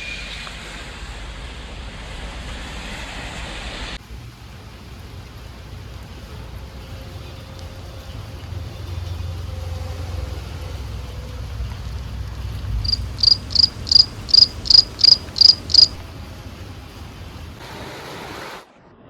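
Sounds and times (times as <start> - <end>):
low rumble: 0.0 - 17.6
steady rain hiss: 0.0 - 18.8
cricket chirping: 4.1 - 17.6.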